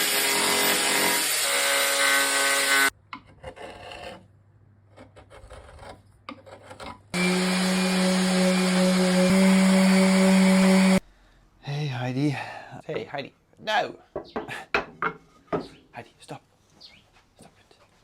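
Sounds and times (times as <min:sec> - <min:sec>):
power tool on wood: 0:00.0 - 0:02.9, 0:07.2 - 0:11.0
humming power tool: 0:07.2 - 0:11.0.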